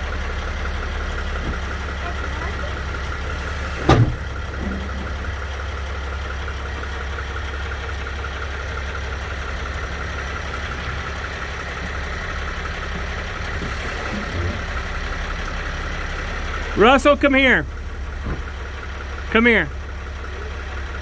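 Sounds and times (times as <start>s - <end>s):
van engine idling: 0.0s - 21.0s
sharp clunk: 3.6s - 4.8s.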